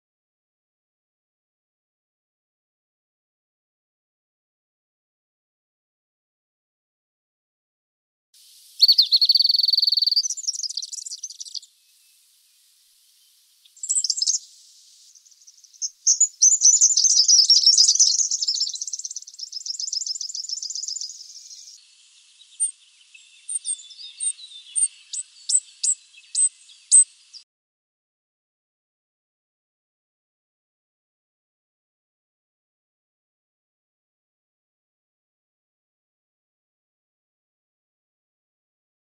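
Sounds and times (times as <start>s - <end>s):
short sharp bird chirps: 8.4s - 21.8s, 22.5s - 27.4s
bird trill: 8.8s - 11.7s, 13.7s - 21.8s, 22.4s - 27.4s
whistled bird note: 8.8s - 12.0s.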